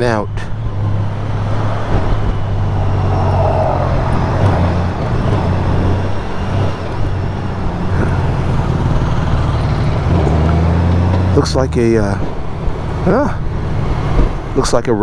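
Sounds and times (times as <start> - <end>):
traffic and road noise: 0.0 - 15.0
motorcycle engine running: 0.6 - 14.6.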